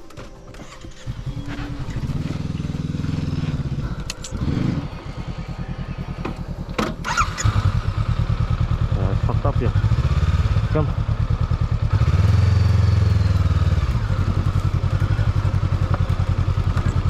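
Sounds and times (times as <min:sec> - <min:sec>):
motorbike engine running: 0:00.4 - 0:17.0.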